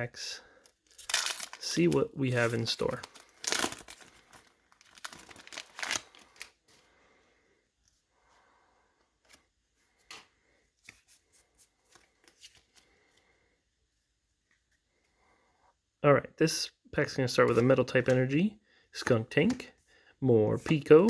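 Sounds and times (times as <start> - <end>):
cards ticking and scraping: 0.6 - 6.5
foil wrapper crinkling and tearing: 0.9 - 6.6.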